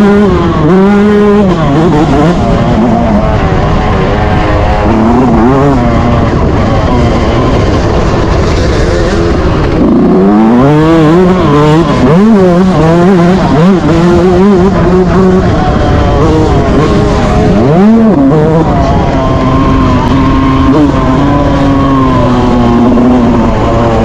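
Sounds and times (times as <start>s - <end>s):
motocross engine revving: 0.0s - 24.0s
wind rumble on microphone: 0.0s - 24.0s.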